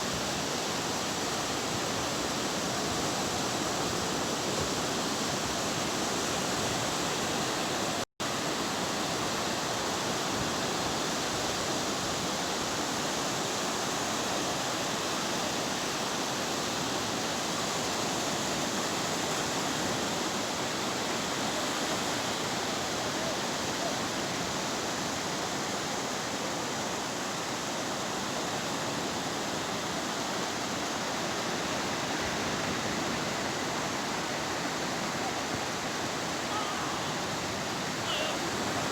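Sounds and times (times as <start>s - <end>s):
sea surf breaking: 31.2s - 38.9s.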